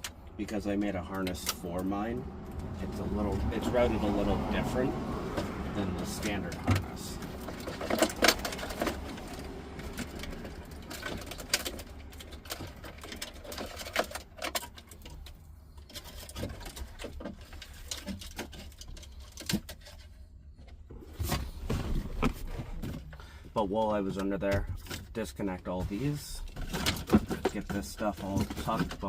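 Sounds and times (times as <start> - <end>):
hands handling plastic parts: 0.0 - 29.0.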